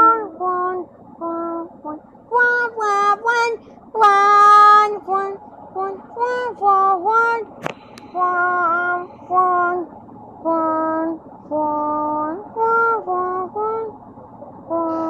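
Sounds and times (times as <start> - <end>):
high voice singing: 0.0 - 14.0, 14.7 - 15.0.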